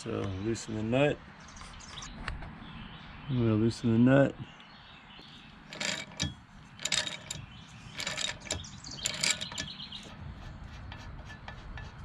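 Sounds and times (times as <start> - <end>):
ratchet wrench clicking: 5.7 - 9.8.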